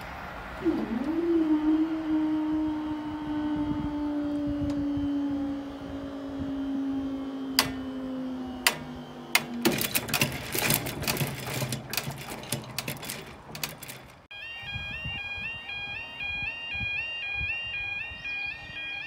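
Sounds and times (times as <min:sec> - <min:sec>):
low engine note: 0:00.0 - 0:18.9
train wheels clattering on rails: 0:08.7 - 0:14.3.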